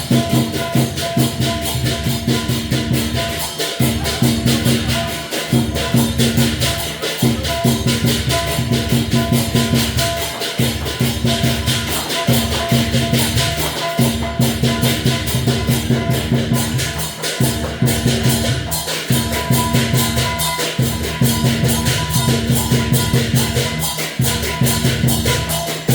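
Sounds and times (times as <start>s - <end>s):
cymbals clashing: 0.0s - 25.9s
drum beat with low ringing tones: 0.0s - 25.9s.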